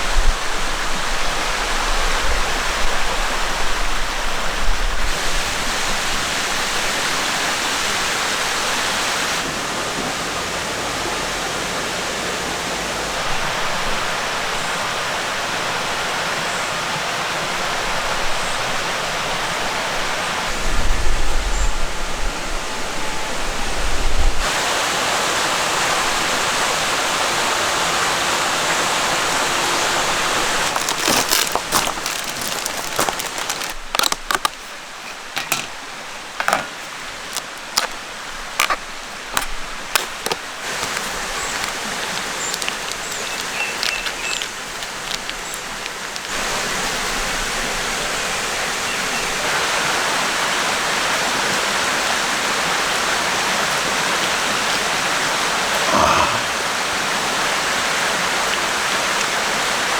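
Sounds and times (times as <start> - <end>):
stream rushing: 0.0 - 21.0, 24.4 - 59.9.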